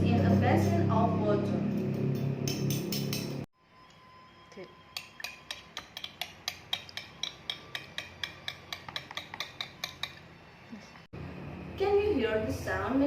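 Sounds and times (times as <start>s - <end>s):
metal spoons clinking underwater: 5.0s - 10.2s.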